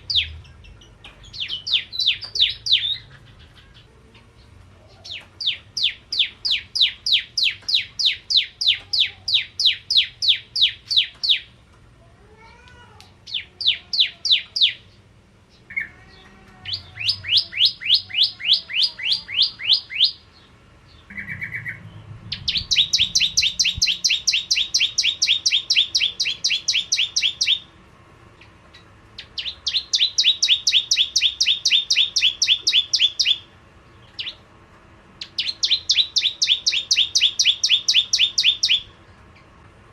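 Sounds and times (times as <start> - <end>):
bird singing rapid high notes: 0.0 - 3.8, 5.1 - 11.5, 16.7 - 27.7, 29.2 - 34.4, 35.2 - 38.9.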